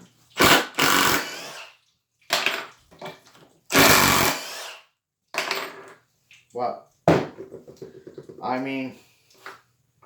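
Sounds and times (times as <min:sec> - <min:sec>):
impact driver bursts: 0:00.4 - 0:01.7, 0:03.7 - 0:04.8.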